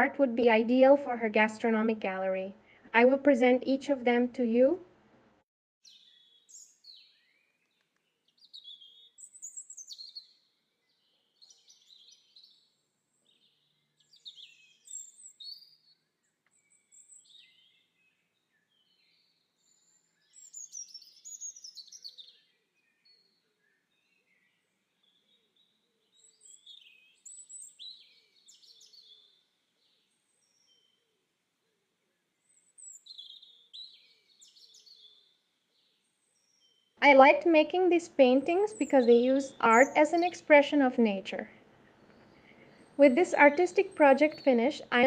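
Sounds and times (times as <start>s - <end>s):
birds chirping and calling: 8.4s - 12.6s, 13.2s - 15.9s, 18.7s - 23.2s, 26.1s - 29.3s, 32.5s - 45.0s.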